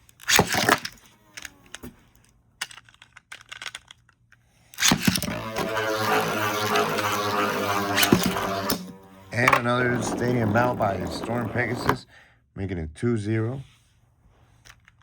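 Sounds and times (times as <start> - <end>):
plastic clicks and rattles: 0.0 - 7.3
spinning tops whirring: 0.2 - 1.9, 4.8 - 12.1
metal wheels grinding: 4.8 - 12.1.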